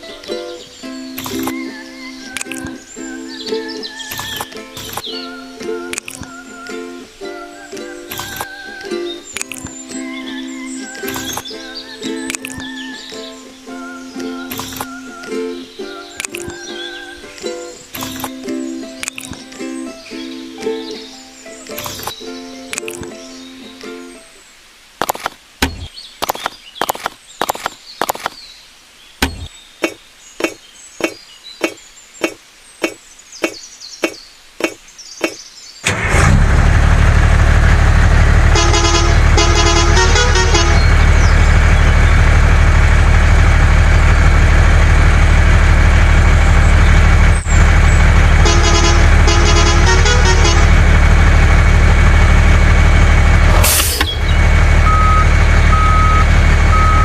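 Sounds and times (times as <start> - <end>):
tractor engine running: 2.4 - 5.1, 10.9 - 13.2, 16.2 - 18.4, 35.8 - 57.0
sharp knocks: 25.0 - 28.4, 29.2 - 35.4
horn tooting: 38.2 - 42.4, 47.7 - 52.1.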